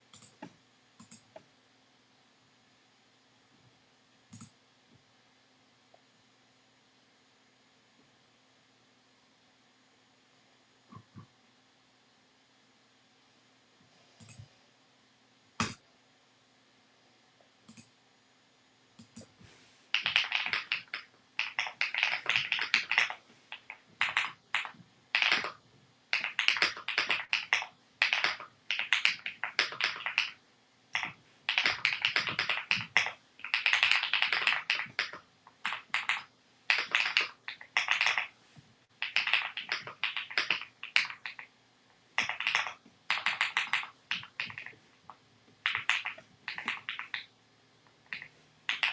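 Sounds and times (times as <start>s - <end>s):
mechanical keyboard typing: 20.0s - 30.4s, 31.0s - 38.3s, 39.0s - 41.5s, 42.2s - 44.8s, 45.6s - 47.2s, 48.1s - 48.9s.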